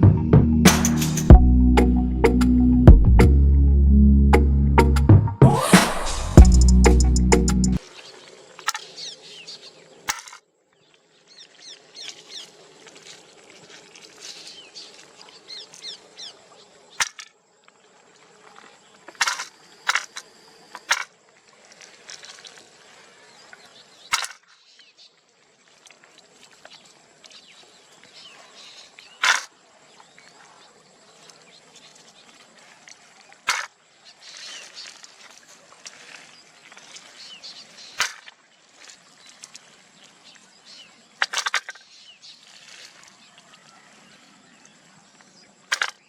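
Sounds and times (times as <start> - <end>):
sharp clicks or knocks: 0.7 - 1.3.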